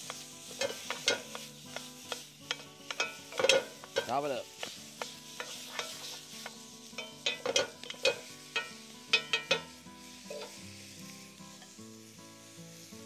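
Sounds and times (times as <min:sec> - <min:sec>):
meat sizzling in a pot: 0:00.0 - 0:13.0.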